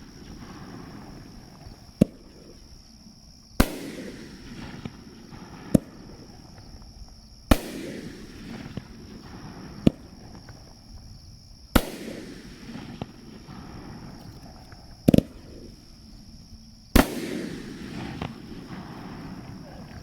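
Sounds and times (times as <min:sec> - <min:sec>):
firework launch report: 0:00.0 - 0:20.0
firework shell bursting: 0:16.9 - 0:19.6.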